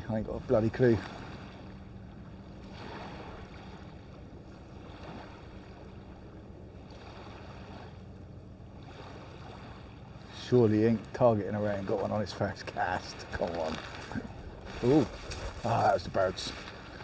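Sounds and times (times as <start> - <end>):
constant low rumble: 0.0 - 17.0
sea washing on shore: 0.0 - 17.0
wind across microphone: 12.0 - 17.0.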